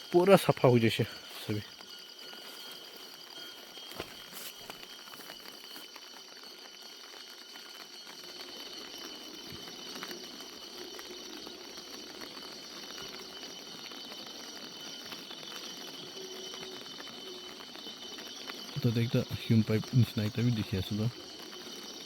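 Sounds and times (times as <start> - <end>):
high insect trill: 0.0 - 22.0
small ticks: 1.7 - 18.8.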